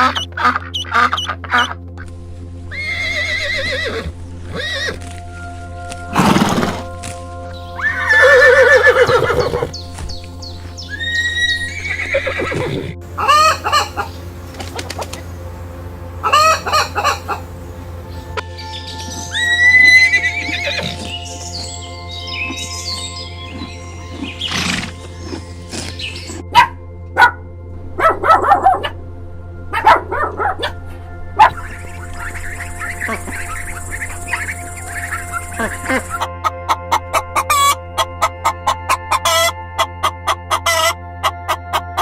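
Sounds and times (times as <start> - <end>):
background music: 0.0 - 42.0
horse whinnies: 2.7 - 5.0, 6.1 - 6.8, 7.8 - 9.8, 10.9 - 14.1, 19.3 - 21.2, 23.6 - 26.1
chicken calls: 10.8 - 18.4, 31.4 - 42.0.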